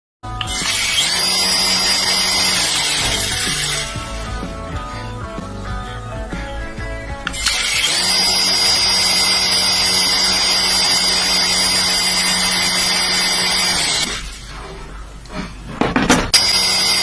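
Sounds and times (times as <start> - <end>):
music: 0.2 - 13.6
toy electric motor whine: 0.3 - 4.4, 7.3 - 14.4, 16.3 - 17.0.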